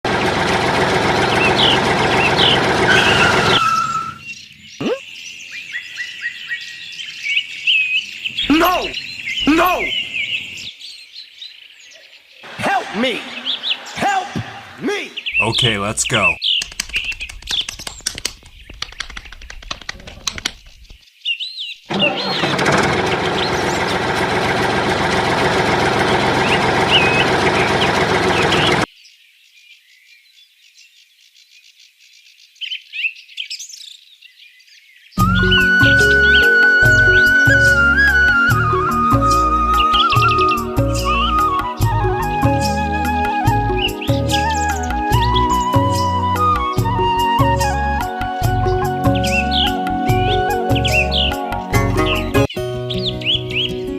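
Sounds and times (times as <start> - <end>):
loud steady noise: 0.1 - 3.6, 22.5 - 28.9
small tractor motor running: 0.1 - 3.6, 21.9 - 28.9
small birds chirping: 1.2 - 24.2, 26.0 - 53.9
scattered clicks: 16.6 - 21.0.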